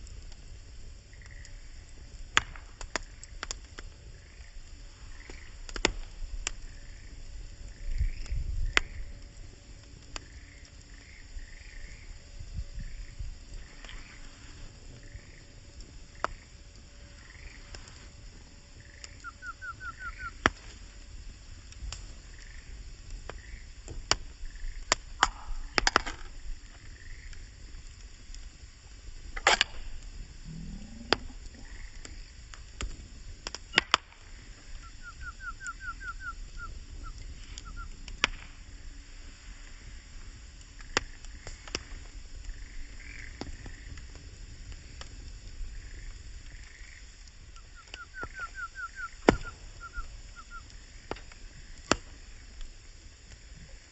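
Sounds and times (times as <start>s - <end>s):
wood fire crackling: 0.0s - 53.9s
soft animal chirps: 18.8s - 20.4s, 34.8s - 37.9s, 47.6s - 50.7s.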